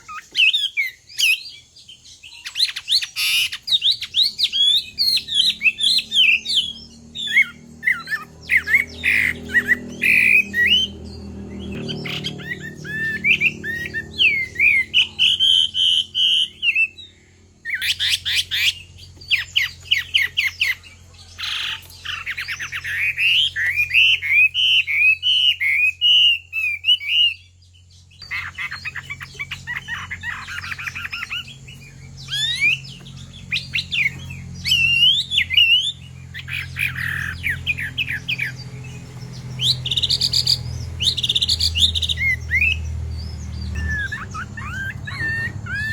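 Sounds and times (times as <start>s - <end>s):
bird singing whistled notes: 0.0s - 45.9s
harsh rasping bird notes: 2.4s - 20.6s, 28.2s - 45.9s.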